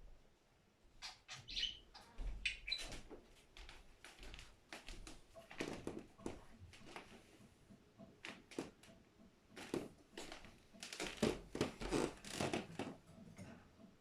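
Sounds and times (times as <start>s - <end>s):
budgerigar chirping: 1.0s - 2.8s.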